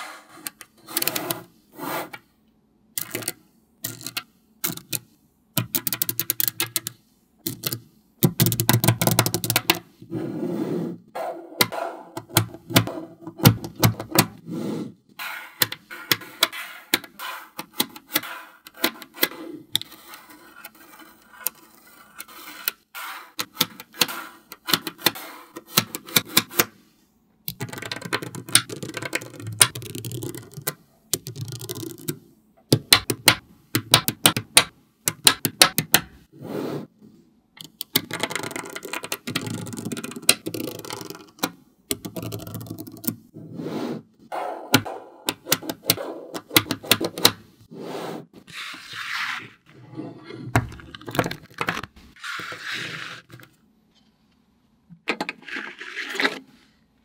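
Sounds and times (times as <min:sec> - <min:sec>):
magnetic balls clicking together: 0:03.0 - 0:05.0, 0:05.6 - 0:09.8, 0:27.4 - 0:36.2, 0:37.6 - 0:43.2, 0:44.7 - 0:47.4.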